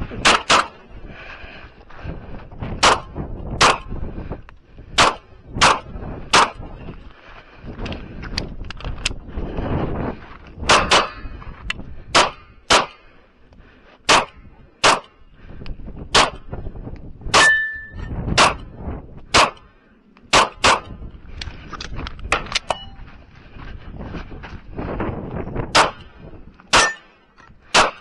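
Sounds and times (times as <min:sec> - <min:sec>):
wind buffeting microphone: 0:00.0 - 0:28.0
pistol shots: 0:00.2 - 0:00.8, 0:02.8 - 0:03.9, 0:05.0 - 0:06.6, 0:10.7 - 0:11.2, 0:12.1 - 0:13.0, 0:14.1 - 0:15.1, 0:16.1 - 0:16.4, 0:18.4 - 0:18.6, 0:19.3 - 0:19.6, 0:20.3 - 0:20.9, 0:25.7 - 0:26.0, 0:26.7 - 0:27.1, 0:27.7 - 0:28.0
ringing tone: 0:17.4 - 0:18.1, 0:22.7 - 0:23.1.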